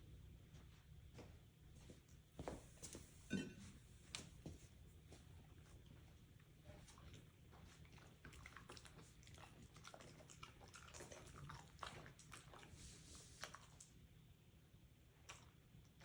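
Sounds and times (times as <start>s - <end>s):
dog chewing food: 5.5s - 13.8s.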